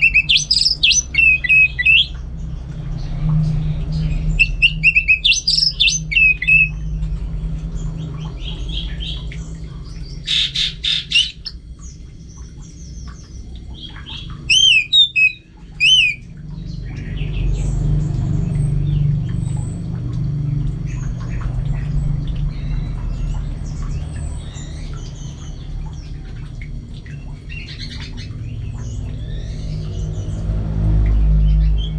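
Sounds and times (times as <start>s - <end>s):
thrush singing sharp chirps: 0.0s - 2.2s, 4.3s - 6.9s, 9.8s - 16.2s
steady low rumble: 0.0s - 31.9s.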